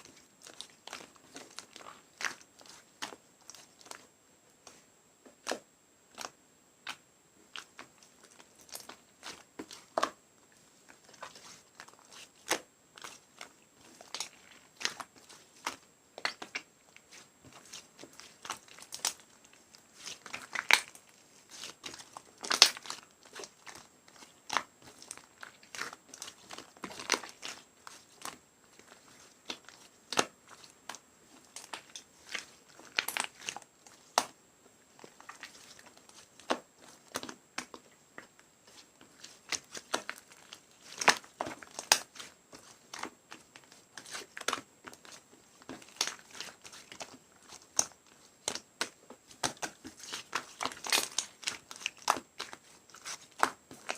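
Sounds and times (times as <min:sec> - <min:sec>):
slime squished by hand: 0:10.9 - 0:53.9.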